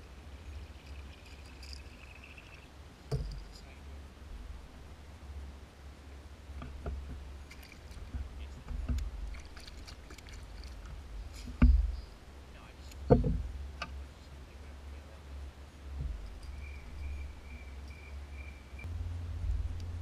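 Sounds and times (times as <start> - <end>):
knocks and thumps on boat: 6.6 - 12.1, 13.0 - 13.9, 16.0 - 16.7
low rumble: 10.4 - 20.0.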